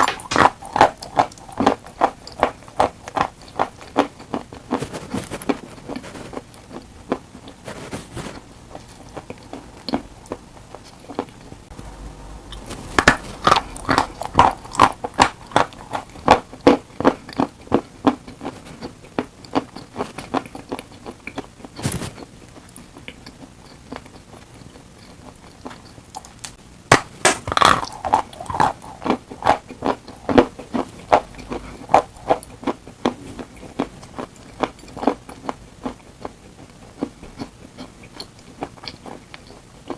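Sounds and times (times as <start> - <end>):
chalk crunching: 0.0 - 9.4.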